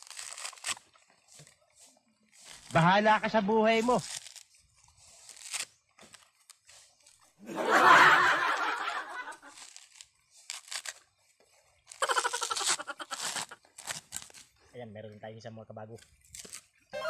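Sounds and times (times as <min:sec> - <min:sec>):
coconut husk fibres ripping: 0:00.0 - 0:07.4, 0:08.8 - 0:11.2, 0:11.8 - 0:14.6, 0:16.0 - 0:16.9
person laughing: 0:07.4 - 0:09.5, 0:12.0 - 0:13.6.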